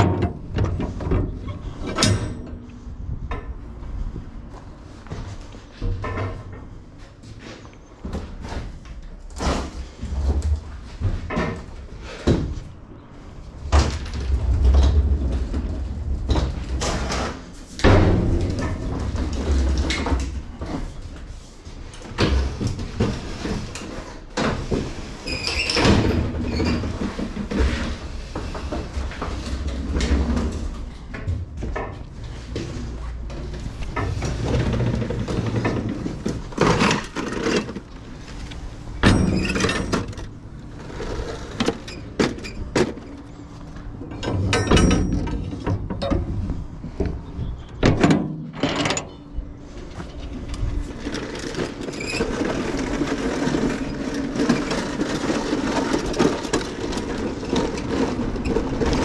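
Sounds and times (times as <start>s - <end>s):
knocks and clatter: 0.0s - 3.7s, 13.6s - 21.3s, 25.7s - 40.4s, 43.8s - 49.2s
low rumble: 12.9s - 20.6s.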